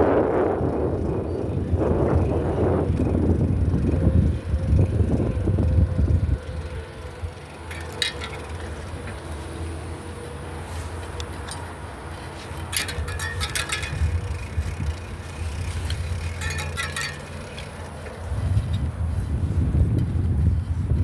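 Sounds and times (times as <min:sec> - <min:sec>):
bicycle tyre rumble on road: 0:00.0 - 0:21.0
wind noise on microphone: 0:00.0 - 0:21.0
rattling clicks: 0:06.7 - 0:09.4, 0:12.5 - 0:18.8.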